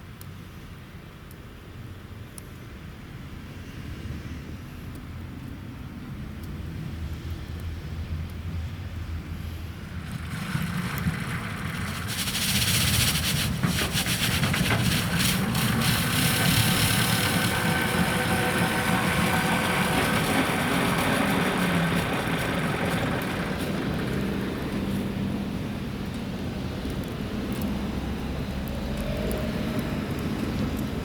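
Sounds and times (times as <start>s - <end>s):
brooms sweeping snow rushing: 9.8s - 25.7s
motor whine and hum: 15.6s - 25.3s.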